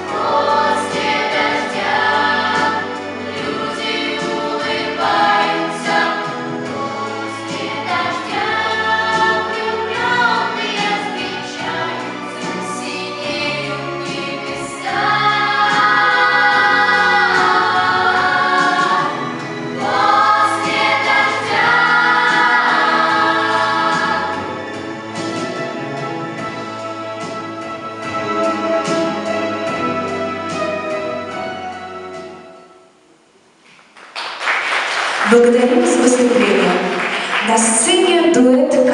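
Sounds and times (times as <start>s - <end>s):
vocal ensemble singing in harmony: 0.0s - 27.4s
instrumental accompaniment: 0.0s - 33.1s.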